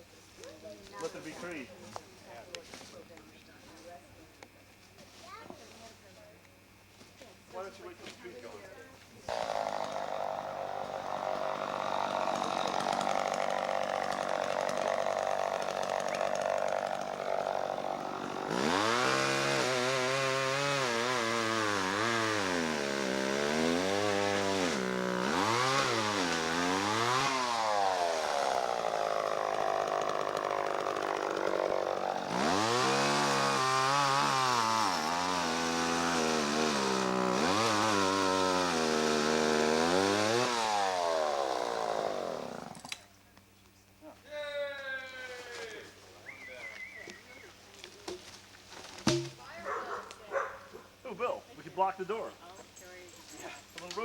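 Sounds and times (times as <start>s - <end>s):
chainsaw revving and cutting wood: 9.3s - 43.0s, 49.0s - 49.4s.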